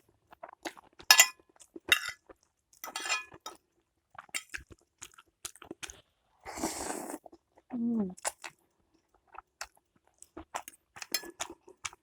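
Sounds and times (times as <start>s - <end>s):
utensil scraping a bowl: 2.8s - 3.6s
wet eating noises: 4.2s - 12.0s.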